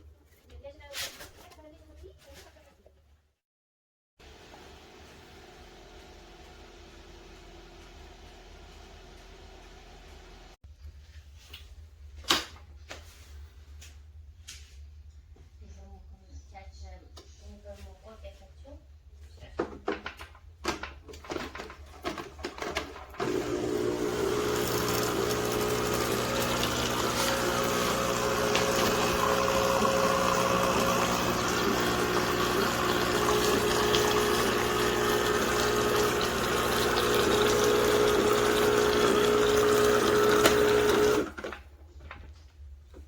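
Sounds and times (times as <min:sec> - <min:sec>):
espresso machine pump humming: 0:23.2 - 0:41.5.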